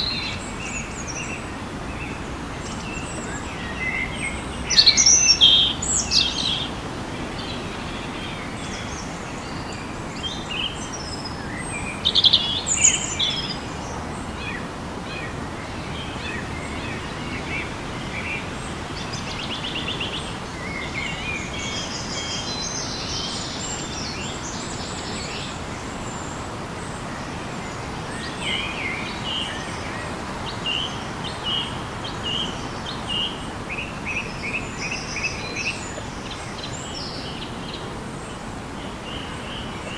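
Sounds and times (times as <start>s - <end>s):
birds calling and chirping: 0.0s - 38.0s
background hiss: 0.0s - 39.9s.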